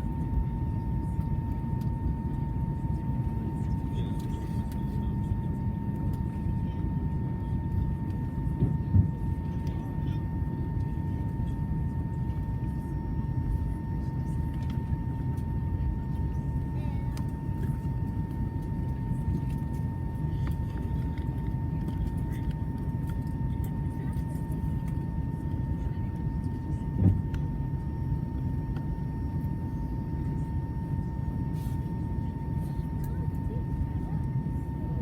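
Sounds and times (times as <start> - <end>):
cabin engine rumble: 0.0 - 35.0
thin steady whine: 0.0 - 35.0.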